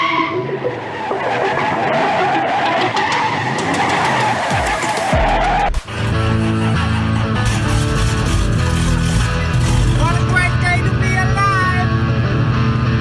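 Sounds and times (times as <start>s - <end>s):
car tyres squealing: 0.0s - 5.7s, 8.6s - 13.0s
music with guitar: 5.9s - 13.0s
car engine: 8.5s - 13.0s.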